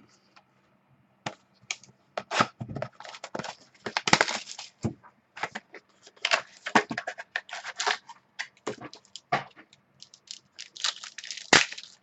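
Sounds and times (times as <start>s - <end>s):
card pack wrapper crinkling: 3.0s - 4.7s, 8.8s - 9.3s, 10.0s - 12.0s
pack being torn open: 10.0s - 12.0s.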